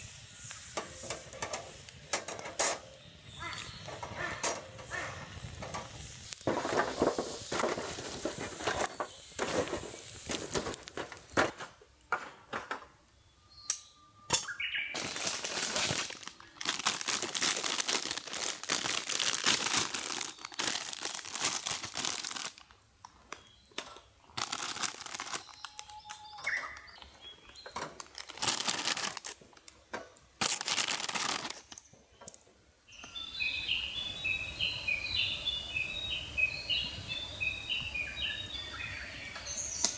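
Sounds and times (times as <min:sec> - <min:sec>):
bird chirping: 0:02.9 - 0:05.5, 0:13.1 - 0:15.1, 0:25.3 - 0:27.8, 0:31.9 - 0:39.9
crinkly material rustling: 0:03.9 - 0:11.4, 0:15.0 - 0:23.5, 0:24.3 - 0:29.8, 0:30.4 - 0:31.9.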